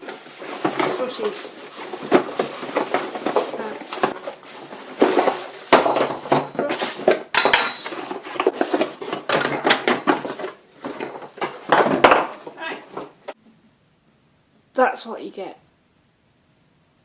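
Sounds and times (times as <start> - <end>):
vacuum cleaner tubes clattering: 0.0 - 13.4.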